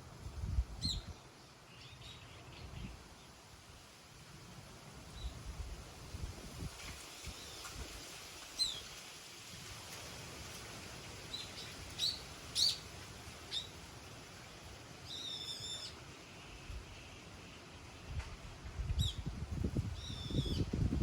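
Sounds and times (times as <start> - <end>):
faint low wind rumble: 0.0 - 8.9, 9.5 - 21.0
small songbirds chirping: 0.8 - 3.4, 8.6 - 9.0, 10.9 - 13.8, 14.4 - 18.0, 18.9 - 20.7.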